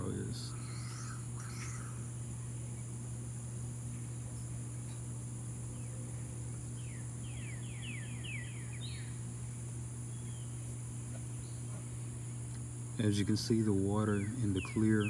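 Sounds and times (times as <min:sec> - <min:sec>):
high insect drone: 0:00.0 - 0:15.0
low hum: 0:00.0 - 0:15.0
bird singing descending notes: 0:06.8 - 0:09.3, 0:14.1 - 0:15.0.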